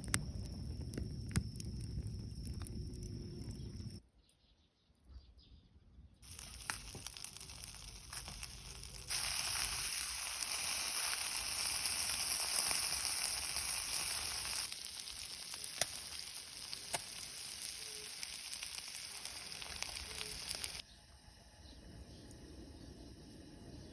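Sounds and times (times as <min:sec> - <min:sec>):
food sizzling in a pan: 0:06.2 - 0:20.8
small pops: 0:06.2 - 0:20.8.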